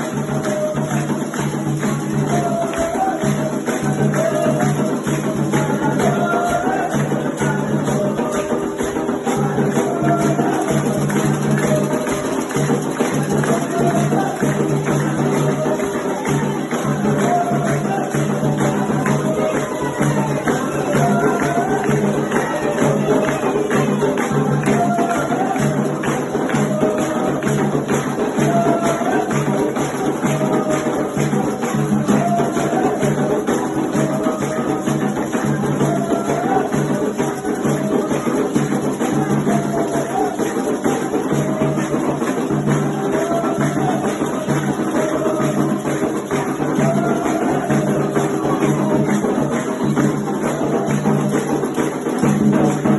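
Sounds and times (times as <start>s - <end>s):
jingling percussion rhythm: 0.0s - 52.9s
voices singing a chant: 0.0s - 52.9s.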